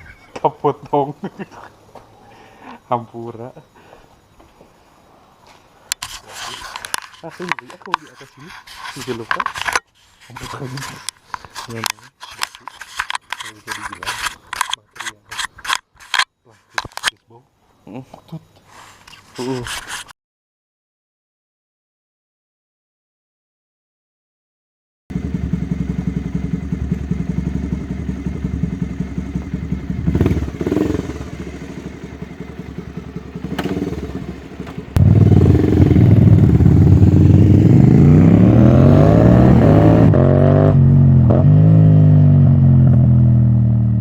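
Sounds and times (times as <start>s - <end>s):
motorcycle engine revving: 25.1s - 44.0s.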